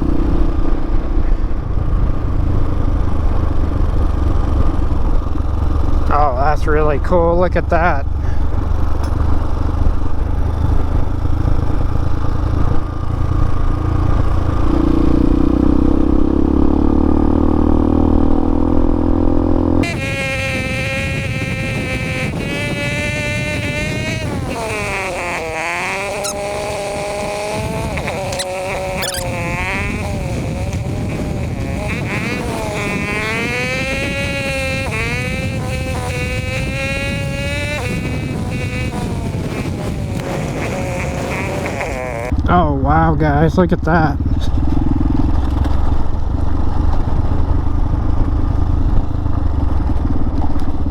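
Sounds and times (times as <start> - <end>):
wind rumble on microphone: 0.0 - 43.2, 44.0 - 50.9
motorcycle engine running: 0.0 - 50.9
wind rumble: 18.2 - 43.0
tyres on gravel road: 19.7 - 50.9.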